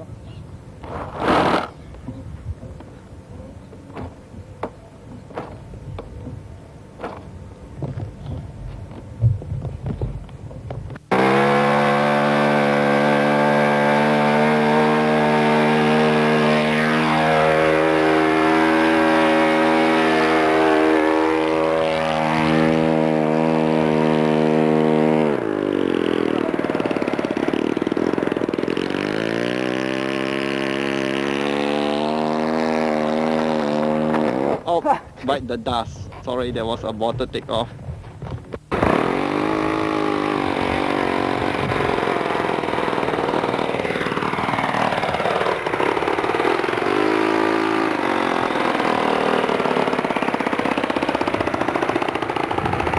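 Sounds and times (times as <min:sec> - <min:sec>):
model aircraft engine running: 0:11.1 - 0:34.7, 0:38.7 - 0:52.9.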